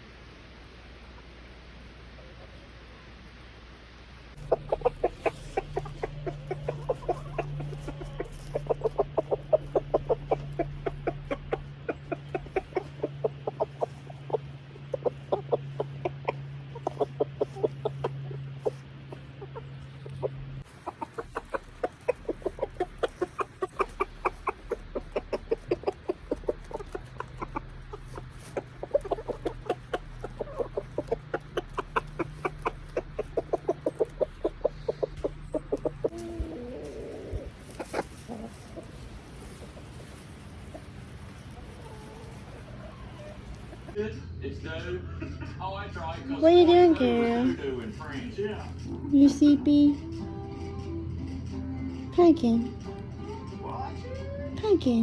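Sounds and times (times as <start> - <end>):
steady low hum: 0.0 - 55.0
chickens clucking: 4.3 - 44.1, 46.6 - 51.6.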